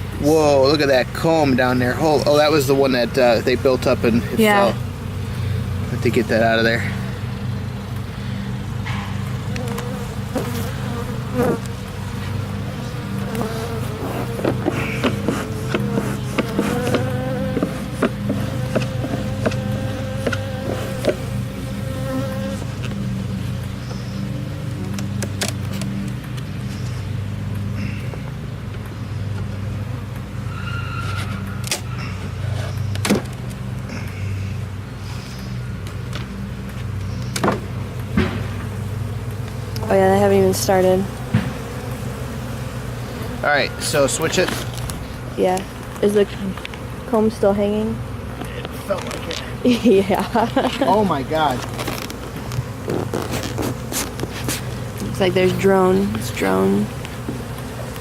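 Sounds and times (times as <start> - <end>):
bees buzzing: 0.0 - 58.0
sharp knocks: 37.4 - 38.7, 41.3 - 41.6.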